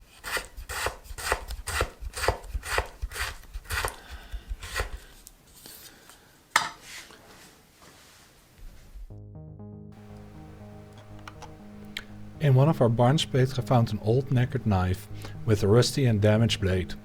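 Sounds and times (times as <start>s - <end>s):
knife chopping on cutting board: 0.3s - 5.1s.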